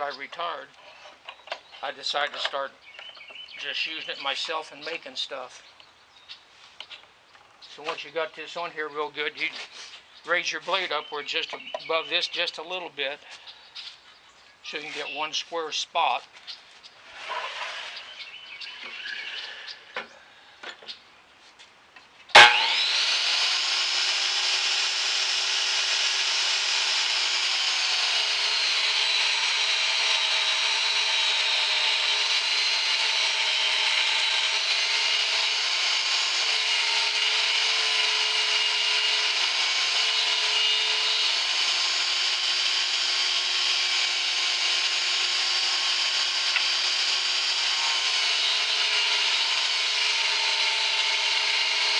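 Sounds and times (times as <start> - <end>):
table saw cutting wood: 17.0 - 19.7, 22.3 - 51.9.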